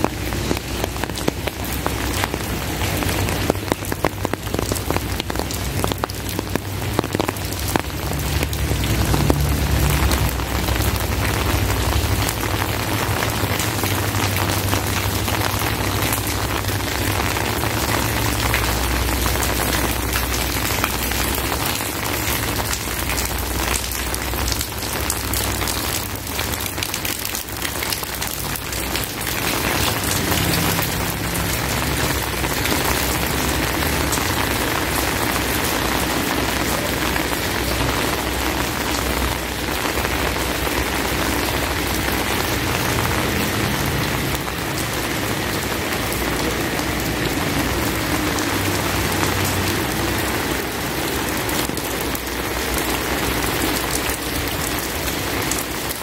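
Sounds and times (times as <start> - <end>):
heavy rain pouring: 0.0 - 56.0
raindrop impacts crackling: 0.0 - 56.0.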